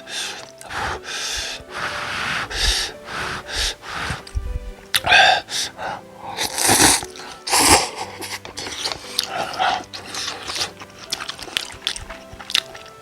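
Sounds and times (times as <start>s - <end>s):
slurping noodles: 0.0s - 4.4s, 5.0s - 13.0s
wet chewing clicks: 6.4s - 13.0s.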